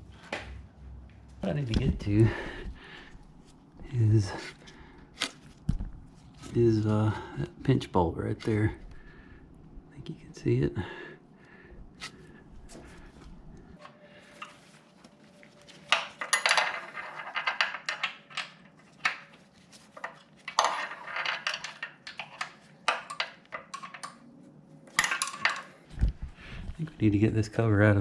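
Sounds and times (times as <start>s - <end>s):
metal hand tools clinking: 15.9s - 18.5s, 25.0s - 25.8s.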